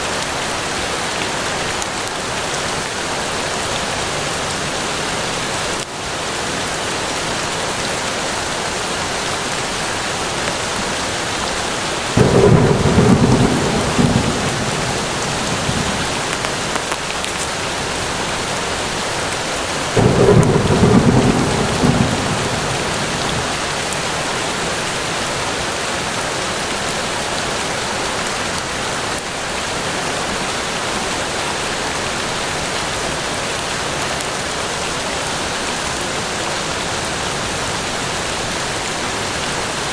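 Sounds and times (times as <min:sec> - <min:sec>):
rain falling on foliage: 0:00.0 - 0:39.9
thunder claps rumbling: 0:12.1 - 0:17.1, 0:20.0 - 0:24.4.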